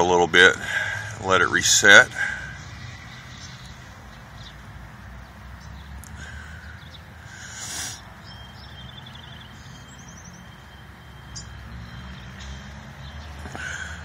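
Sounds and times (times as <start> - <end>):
birds chirping: 0.0 - 14.0
bird trills: 5.7 - 14.0.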